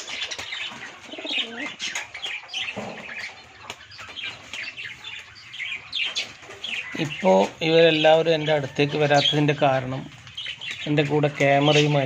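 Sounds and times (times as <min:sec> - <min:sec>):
wings flapping: 0:00.0 - 0:07.6
birds chirping: 0:00.0 - 0:12.0
pigeons cooing: 0:00.0 - 0:12.0.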